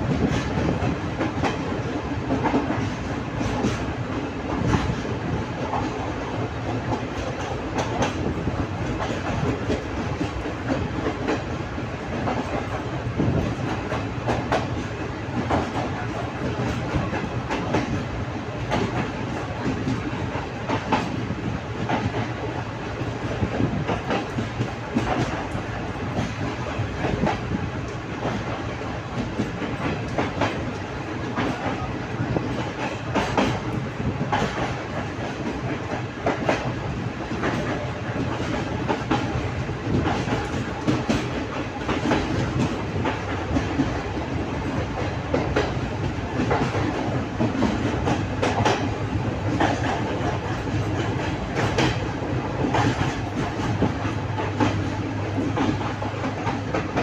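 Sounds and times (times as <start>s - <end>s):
train rumbling on rails: 0.0s - 57.0s
wheels clicking over rail joints: 23.2s - 57.0s.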